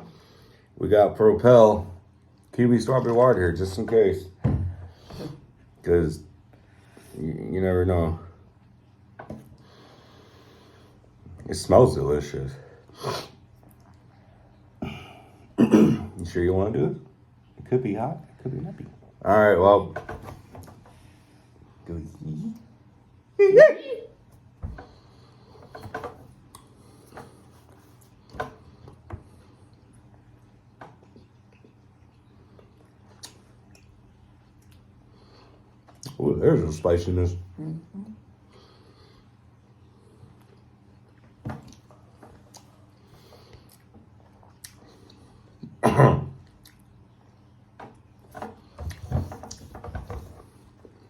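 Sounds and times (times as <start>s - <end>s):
person clearing throat: 14.8s - 16.2s, 45.8s - 46.4s
person chewing jerky: 31.0s - 35.0s, 40.4s - 45.7s.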